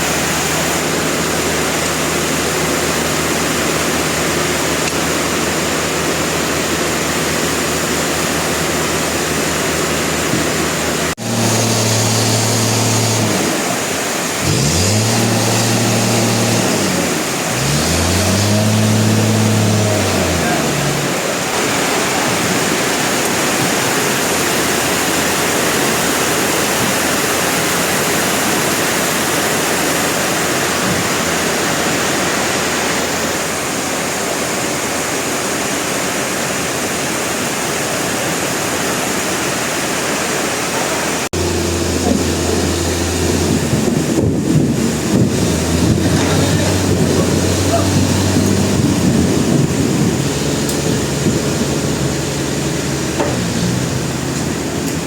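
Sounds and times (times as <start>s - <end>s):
sawmill machinery running: 0.0s - 55.0s
low machine hum: 41.4s - 55.0s.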